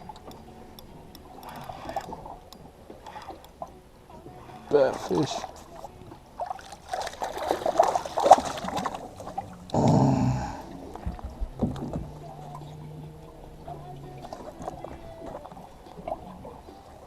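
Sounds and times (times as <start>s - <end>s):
low steady hum: 7.8s - 17.0s
knocks and rattles on a boat: 11.0s - 16.4s.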